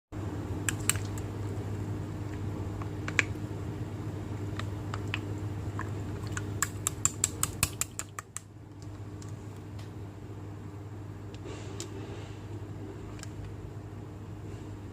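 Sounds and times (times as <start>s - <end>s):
low steady hum: 0.2s - 14.9s
slime clicking and popping: 5.0s - 8.5s.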